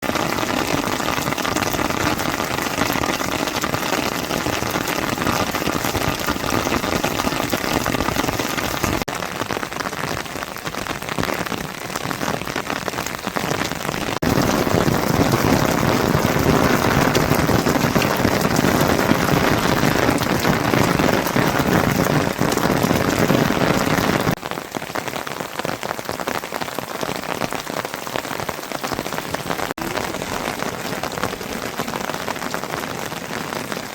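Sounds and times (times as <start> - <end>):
steady rain: 0.0 - 33.9.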